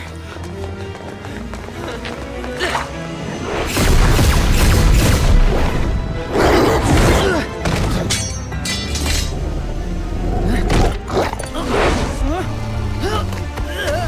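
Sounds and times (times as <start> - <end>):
dramatic film score: 0.0 - 14.0.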